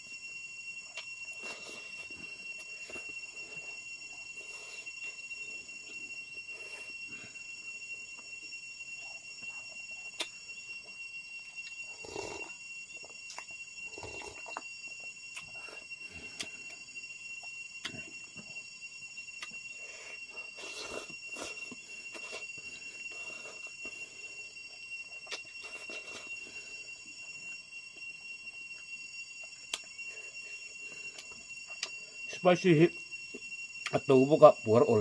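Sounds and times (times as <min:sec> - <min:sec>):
high-pitched whine: 0:00.0 - 0:35.0
chewing and mouth smacks: 0:00.9 - 0:01.6, 0:09.5 - 0:10.4, 0:13.0 - 0:14.7, 0:25.2 - 0:26.3, 0:29.4 - 0:29.9, 0:31.2 - 0:32.0.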